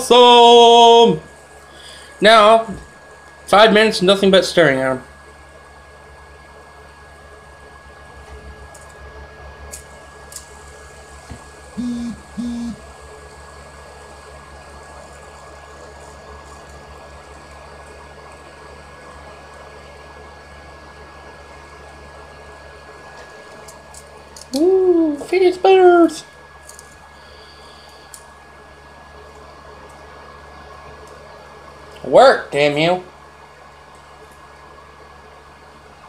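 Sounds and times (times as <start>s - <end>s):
electric fan humming: 0.0s - 36.0s
faint high whine: 0.0s - 36.0s
low hoot-like tones: 11.8s - 13.0s.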